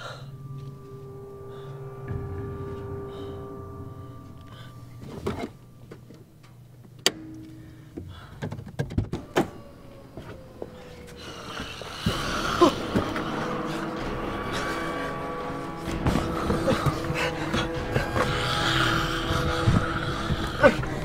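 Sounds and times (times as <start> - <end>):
low film score: 0.0 - 21.0.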